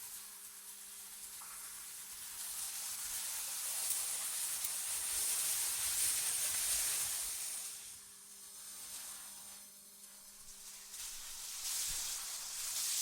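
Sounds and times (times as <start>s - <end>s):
synthetic wind hiss: 6.9s - 13.0s.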